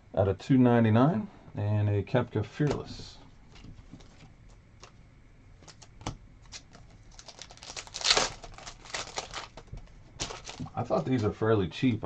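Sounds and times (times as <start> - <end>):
foil wrapper crinkling: 5.6 - 11.3.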